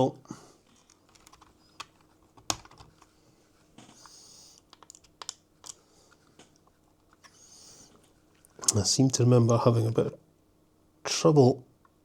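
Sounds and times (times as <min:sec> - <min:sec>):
plastic parts clicking and tapping: 0:00.8 - 0:03.1, 0:04.6 - 0:05.8.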